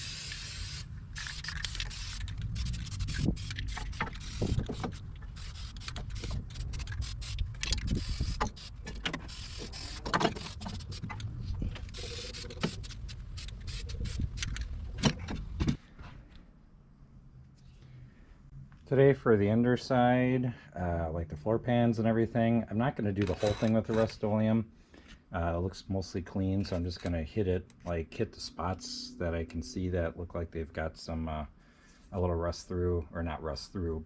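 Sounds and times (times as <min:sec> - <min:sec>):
aerosol spray can hissing: 0:00.0 - 0:11.0, 0:11.9 - 0:14.4
knocks clicks and scrapes: 0:01.2 - 0:16.2.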